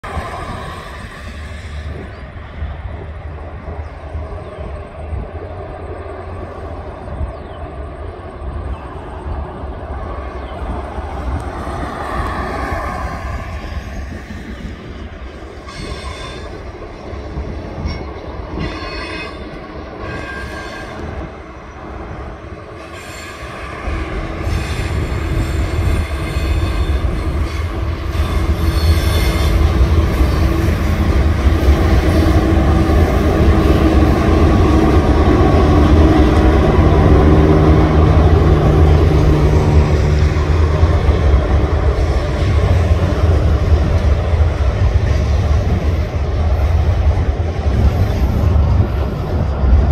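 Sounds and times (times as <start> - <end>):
freight train passing: 0.0 - 49.9
high wheel squeal: 22.8 - 31.0.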